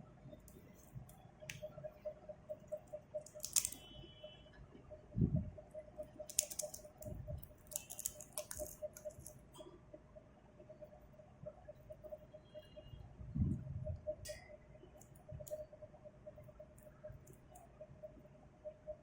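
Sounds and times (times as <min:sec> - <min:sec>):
parrot crunching a cracker: 0:03.3 - 0:03.9, 0:06.2 - 0:09.4.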